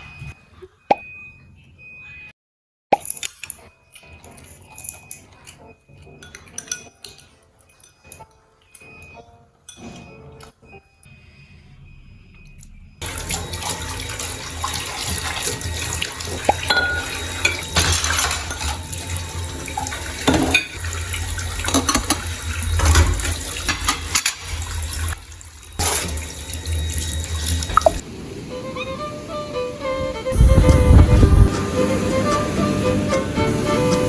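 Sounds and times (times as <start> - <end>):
water running from tap into sink: 13.0 - 28.0.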